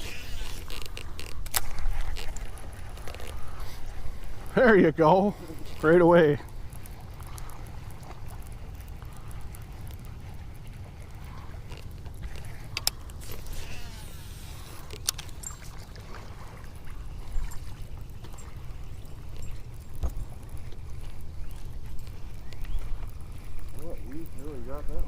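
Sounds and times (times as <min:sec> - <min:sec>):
sharp clicks: 0:00.0 - 0:03.4, 0:11.7 - 0:14.0
water lapping against boat hull: 0:00.0 - 0:25.0
wind rumbling on microphone: 0:00.0 - 0:25.0.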